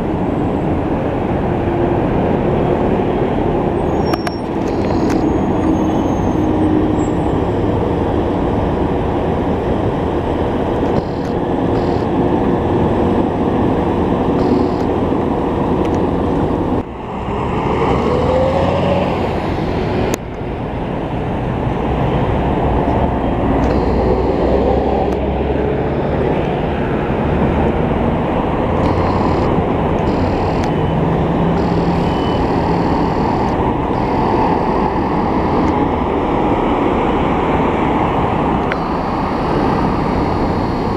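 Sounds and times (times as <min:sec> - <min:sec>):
heavy vehicle engines and tyres: 0:00.0 - 0:40.9.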